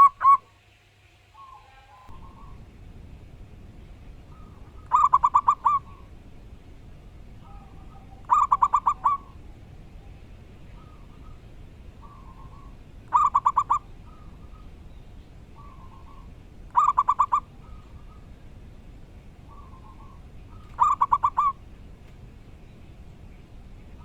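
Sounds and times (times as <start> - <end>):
dove cooing: 0.0 - 0.5, 1.4 - 24.0.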